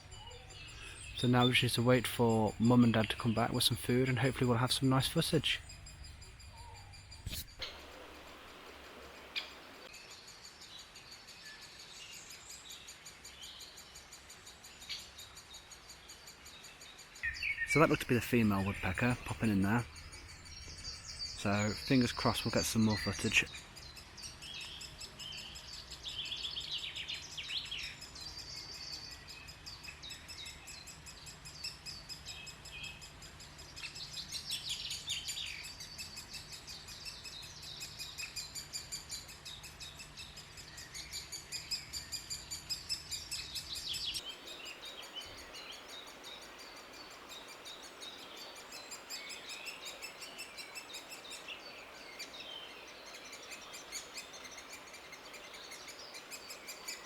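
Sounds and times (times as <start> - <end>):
young birds chirping: 0.0 - 8.4, 17.2 - 57.0
faint outdoor background: 0.0 - 57.0.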